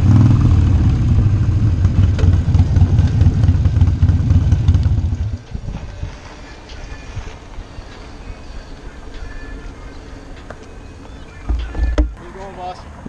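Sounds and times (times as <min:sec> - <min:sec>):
motorcycle engine idling: 0:00.0 - 0:05.5.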